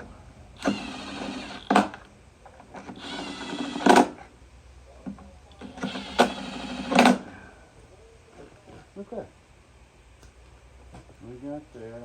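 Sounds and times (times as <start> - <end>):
cordless drill whirring: 0.6 - 2.1, 2.8 - 4.2, 5.6 - 7.3.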